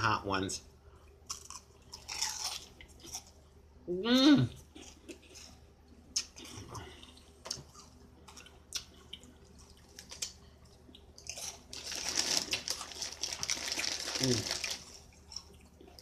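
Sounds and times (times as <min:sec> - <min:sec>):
crunchy chewing: 0:01.2 - 0:03.4, 0:04.6 - 0:16.0
snack bag crinkling: 0:09.5 - 0:10.4, 0:11.2 - 0:15.6.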